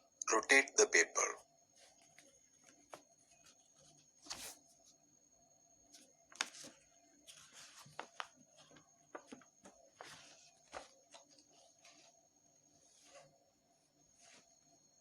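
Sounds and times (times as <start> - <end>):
paper rustling and crinkling: 1.7 - 5.0, 5.9 - 13.4, 14.1 - 14.8.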